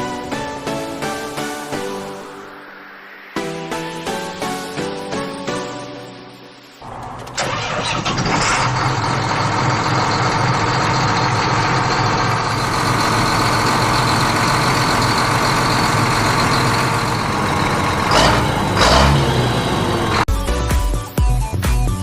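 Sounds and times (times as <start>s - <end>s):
tractor engine idling: 6.8s - 20.3s.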